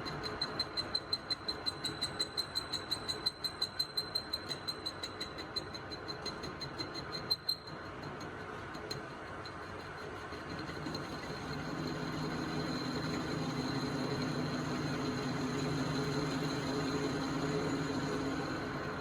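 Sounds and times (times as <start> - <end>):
workshop machine running: 10.5 - 19.0.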